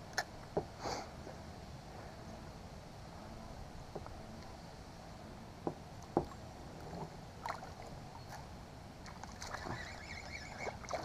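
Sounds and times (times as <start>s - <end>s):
water lapping: 6.7s - 11.0s.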